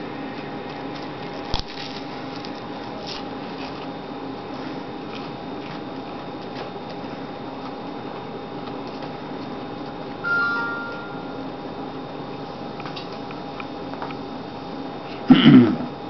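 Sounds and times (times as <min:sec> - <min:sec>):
man chewing food: 0:00.2 - 0:10.2.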